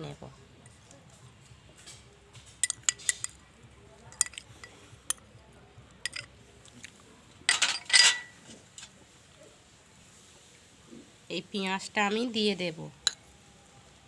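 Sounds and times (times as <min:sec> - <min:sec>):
kitchen utensils clinking: 0:02.6 - 0:03.4, 0:04.1 - 0:05.2, 0:06.0 - 0:06.3, 0:07.5 - 0:08.4.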